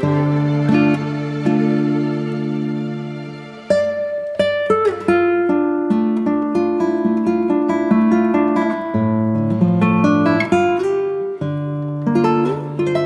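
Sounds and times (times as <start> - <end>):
plucked acoustic guitar: 0.0 - 13.0.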